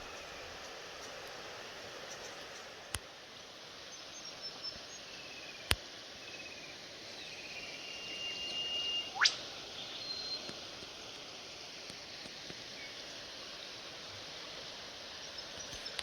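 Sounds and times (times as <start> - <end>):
bird long steady whistle: 3.9 - 10.6
birds chirping trills: 6.3 - 10.5
bird upward-sweeping whistle: 7.3 - 10.5.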